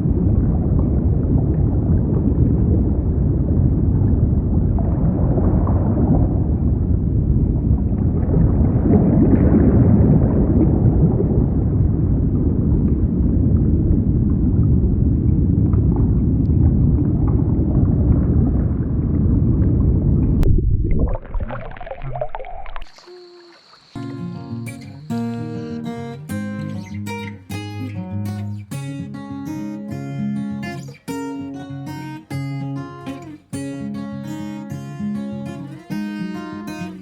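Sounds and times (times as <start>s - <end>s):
underwater rumbling and gurgling: 0.0s - 23.0s.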